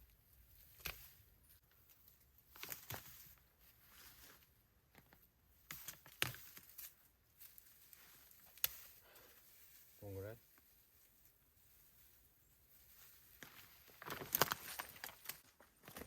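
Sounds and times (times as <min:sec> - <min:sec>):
twigs cracking: 0:00.5 - 0:16.0
leaves rustling: 0:05.5 - 0:16.0.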